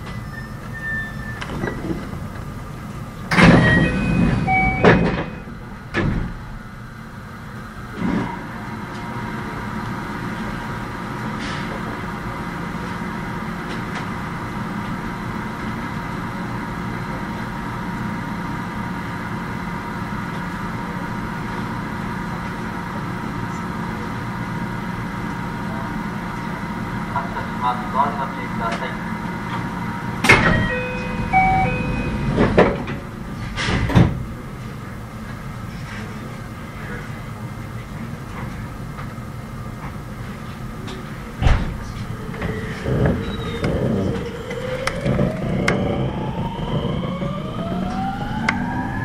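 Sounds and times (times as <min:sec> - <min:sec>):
electrical hum with high tones: 0:24.9 - 0:37.0, 0:40.7 - 0:49.0.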